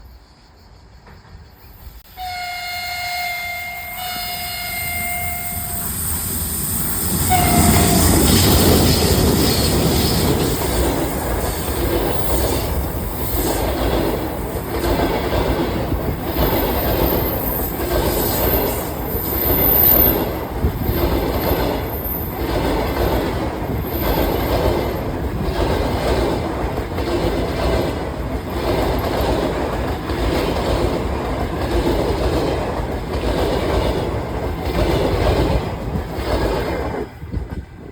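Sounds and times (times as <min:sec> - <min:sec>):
train rumbling past: 0:00.0 - 0:37.9
train horn blasts: 0:02.1 - 0:06.0, 0:07.2 - 0:08.5
high wheel squeal: 0:02.7 - 0:10.8
wheels clacking over rail joints: 0:07.1 - 0:37.7.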